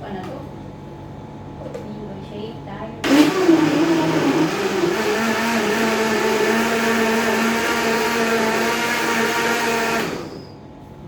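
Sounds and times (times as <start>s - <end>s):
electric blender running: 3.0s - 10.6s.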